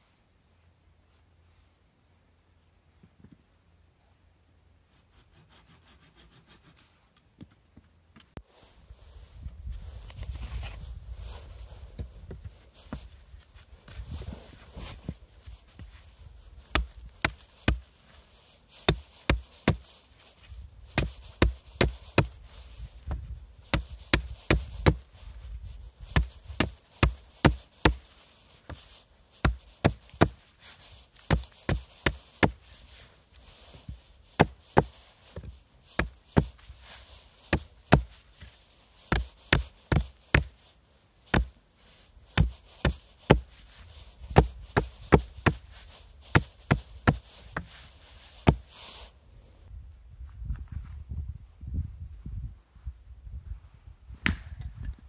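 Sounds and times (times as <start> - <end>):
sharp chopping strikes on wood: 16.7 - 17.9, 18.9 - 19.9, 20.9 - 22.4, 23.1 - 25.0, 26.1 - 28.1, 29.4 - 30.4, 31.2 - 32.6, 34.4 - 36.6, 37.5 - 38.2, 39.1 - 40.6, 41.3 - 41.6, 42.3 - 43.5, 44.3 - 45.6, 46.3 - 47.7, 48.4 - 48.6, 54.2 - 54.7.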